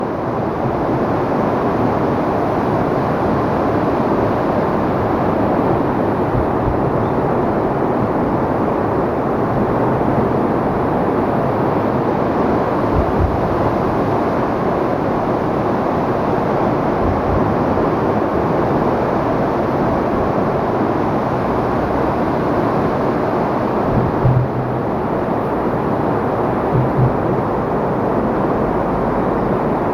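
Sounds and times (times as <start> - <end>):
low thumps: 6.1 - 7.4, 12.9 - 14.0, 23.7 - 28.5
floodwater roaring: 11.4 - 29.9.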